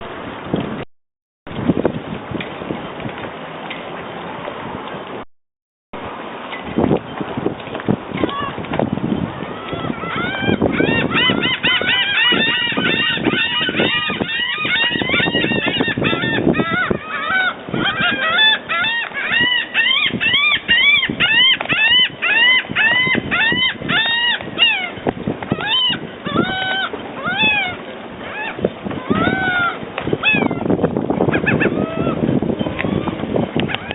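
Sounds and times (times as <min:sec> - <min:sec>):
gull yelping calls: 0:09.4 - 0:30.7, 0:31.3 - 0:33.9.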